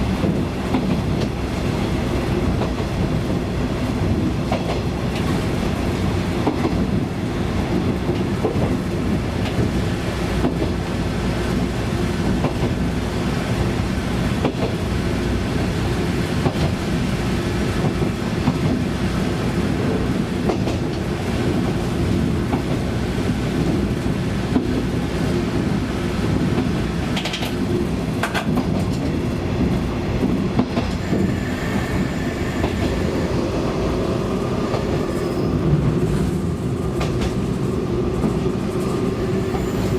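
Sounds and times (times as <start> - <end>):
diesel railcar engine drone: 0.0 - 39.9
wheels clicking over rail joints: 26.5 - 31.0.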